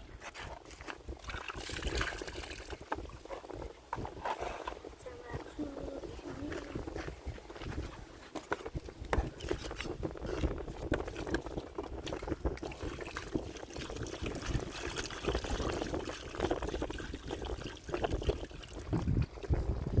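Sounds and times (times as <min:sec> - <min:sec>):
water sloshing and trickling: 0:00.0 - 0:20.0
small splashes: 0:12.0 - 0:19.6.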